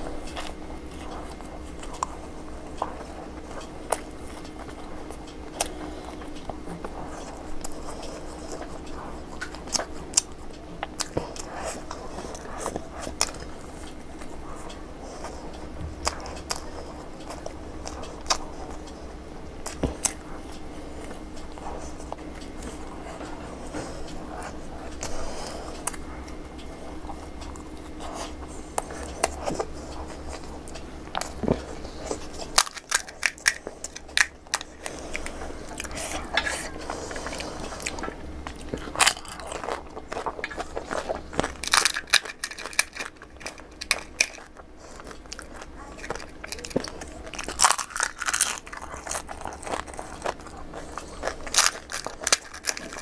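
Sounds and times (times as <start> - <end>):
close-miked chewing: 0.0 - 53.0
crisp shell cracking: 29.0 - 53.0.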